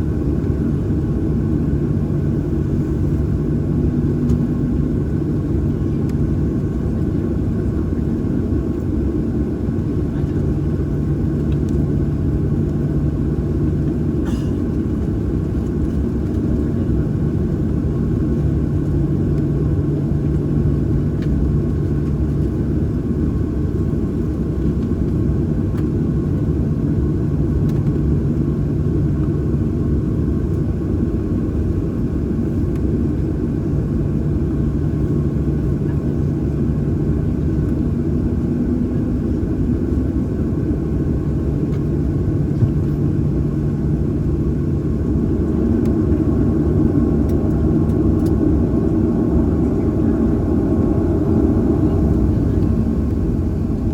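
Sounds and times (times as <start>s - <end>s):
jet engines rumbling at idle: 0.0s - 53.9s
low hum: 37.2s - 53.9s.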